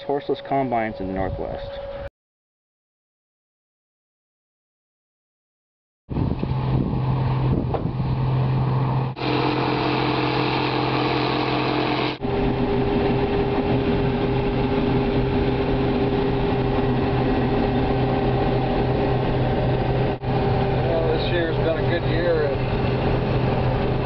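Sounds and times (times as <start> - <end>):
machinery engines running: 6.2 - 24.0.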